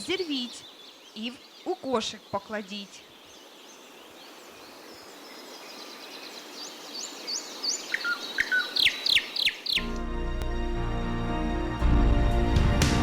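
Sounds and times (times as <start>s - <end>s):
birds chirping: 0.0s - 10.1s
music: 9.8s - 13.0s.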